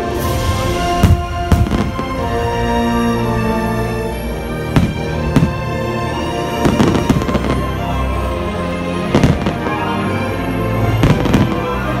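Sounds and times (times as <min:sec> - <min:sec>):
fireworks bangs: 0:00.8 - 0:02.6, 0:04.7 - 0:05.8, 0:06.6 - 0:07.8, 0:09.1 - 0:09.8, 0:11.0 - 0:11.8.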